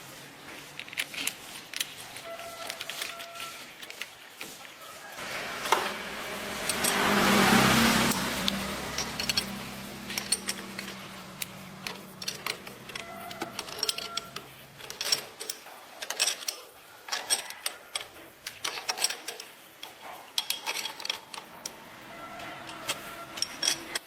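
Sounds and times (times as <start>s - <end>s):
tool clicks and metallic clinks: 0.8s - 4.6s, 5.4s - 24.0s.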